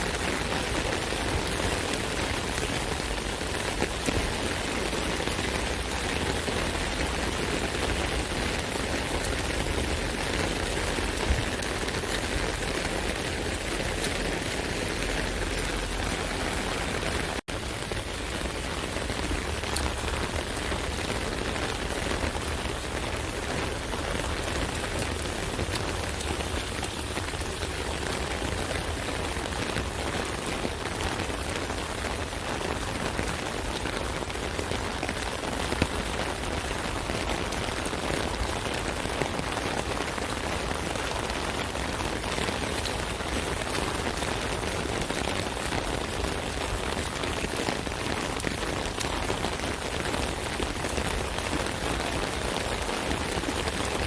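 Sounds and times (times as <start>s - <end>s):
rain drumming on an umbrella: 0.0s - 54.0s.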